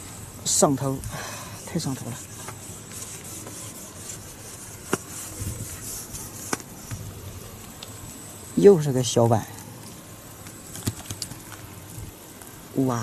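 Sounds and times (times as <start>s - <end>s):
sharp clicks: 10.4s - 11.6s.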